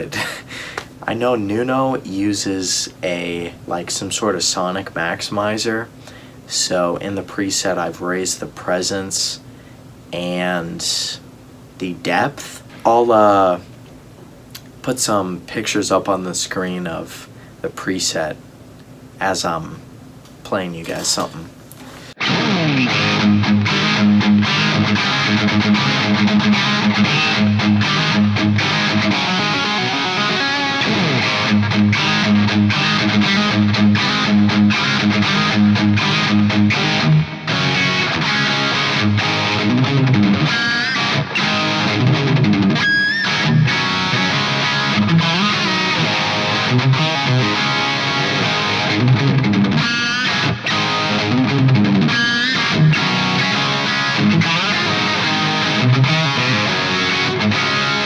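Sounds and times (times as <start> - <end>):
distorted electric guitar riffing: 22.0 - 58.0.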